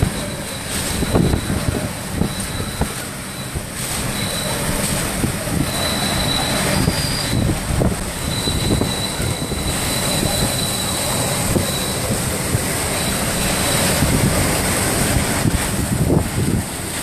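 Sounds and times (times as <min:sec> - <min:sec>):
wind gusts buffeting microphone: 0:00.0 - 0:17.0
strong wind blowing: 0:04.8 - 0:17.0.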